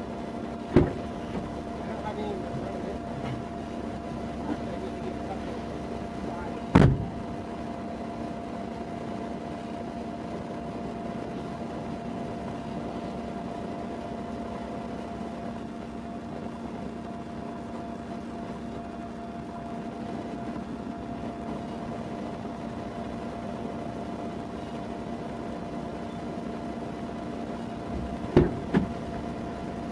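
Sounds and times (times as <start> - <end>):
idling vehicle hum and hiss: 0.0 - 29.9
constant tones: 0.7 - 3.4, 4.5 - 7.5, 27.9 - 29.8.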